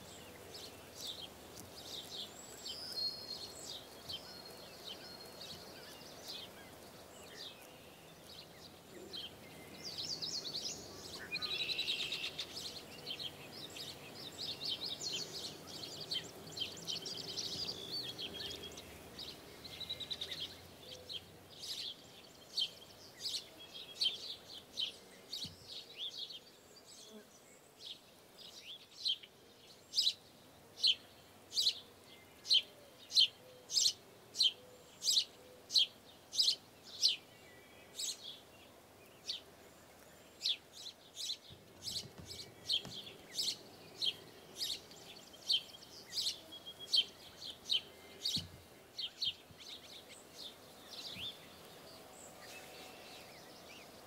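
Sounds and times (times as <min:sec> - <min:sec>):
faint outdoor background: 0:00.0 - 0:54.0.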